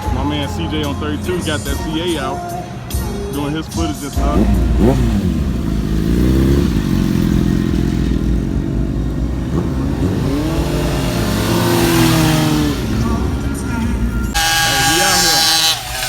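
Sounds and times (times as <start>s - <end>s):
small motorbike engine revving: 4.2s - 16.0s.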